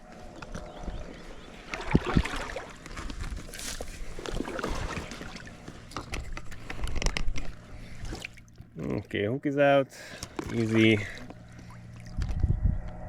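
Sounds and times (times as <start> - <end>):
river water splashing: 1.1 - 9.0, 10.0 - 12.2.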